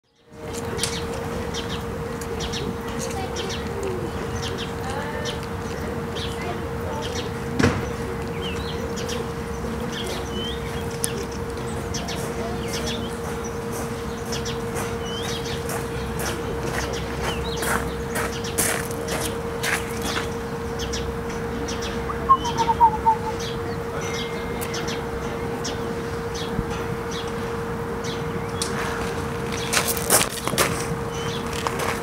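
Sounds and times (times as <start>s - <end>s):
steady low hum: 19.3s - 24.0s
small birds chirping: 20.0s - 25.0s.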